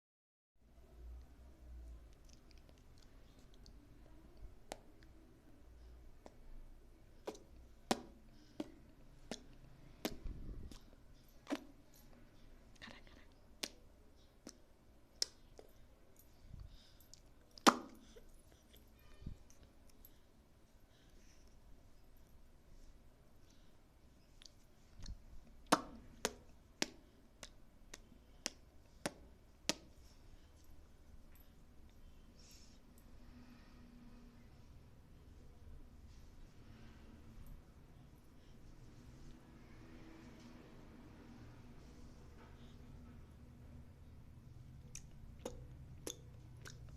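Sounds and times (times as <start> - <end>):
baby clicking mouth: 44.9 - 46.9.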